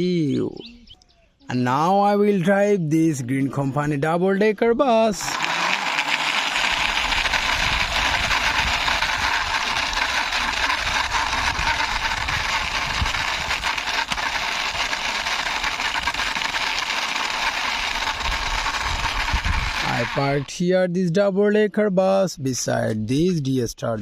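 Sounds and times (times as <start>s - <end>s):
toy bus wheels rattling: 5.2s - 20.4s.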